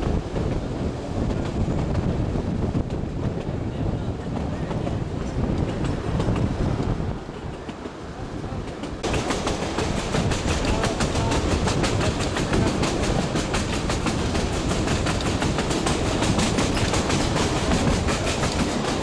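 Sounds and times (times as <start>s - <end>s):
train rumble: 0.0s - 19.0s
wheels clattering over track: 8.8s - 19.0s.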